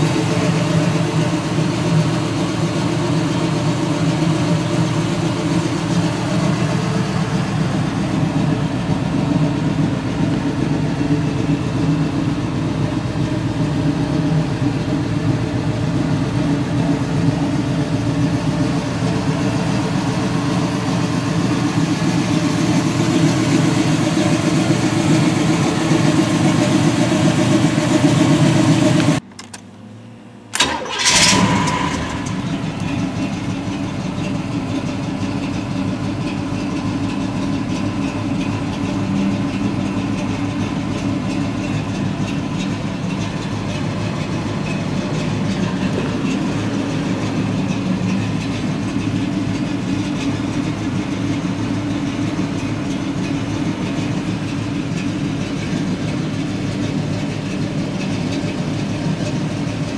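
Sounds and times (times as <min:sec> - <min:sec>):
car engine idling: 0:00.0 - 0:59.9
engine starting: 0:30.5 - 0:32.6.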